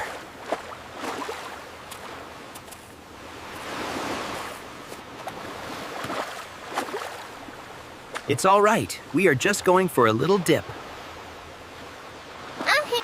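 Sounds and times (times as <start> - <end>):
ocean waves washing in: 0.0 - 13.0.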